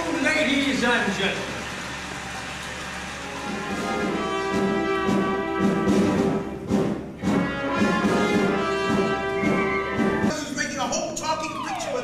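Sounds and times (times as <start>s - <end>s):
orchestra playing brass-led show tune: 3.1s - 10.4s.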